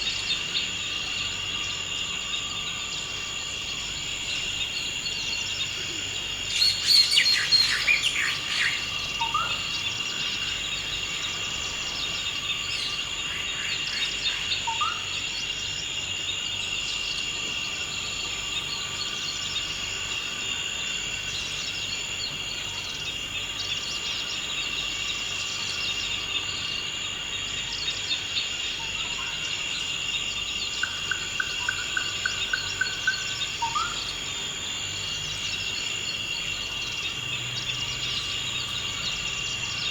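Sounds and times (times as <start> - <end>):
insect drone: 0.0 - 39.9
birds calling: 4.3 - 15.1.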